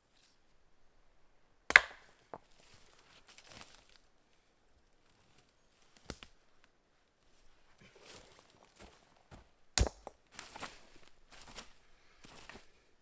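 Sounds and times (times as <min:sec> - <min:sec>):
axe chopping wood: 0:01.7 - 0:02.5, 0:09.8 - 0:10.4.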